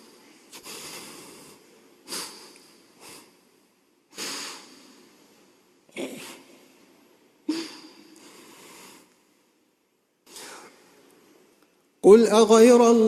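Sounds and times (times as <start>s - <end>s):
man breathing in close to microphone: 0.0s - 5.5s, 7.5s - 9.4s, 10.2s - 11.0s.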